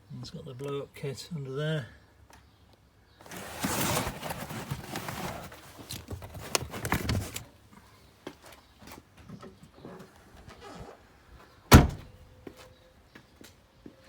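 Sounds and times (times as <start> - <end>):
rustling: 3.2 - 9.0.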